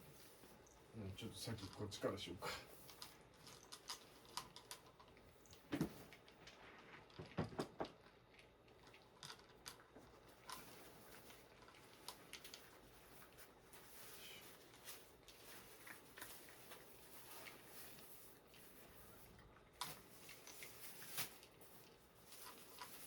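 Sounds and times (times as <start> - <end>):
cat litter being scooped: 0.0 - 4.7, 10.1 - 23.0.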